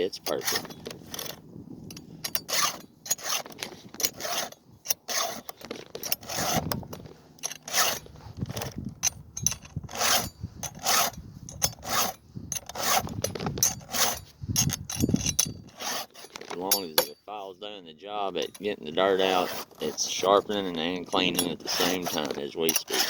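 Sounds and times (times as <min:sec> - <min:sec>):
file rasping on chainsaw chain: 0:00.0 - 0:17.0, 0:18.4 - 0:23.0.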